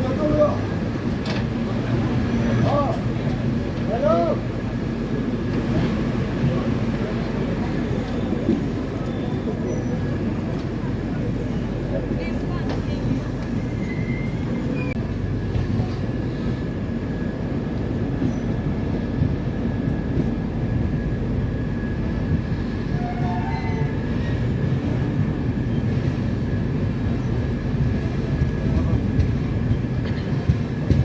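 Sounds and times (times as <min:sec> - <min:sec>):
train rumbling on track: 0:00.0 - 0:31.0.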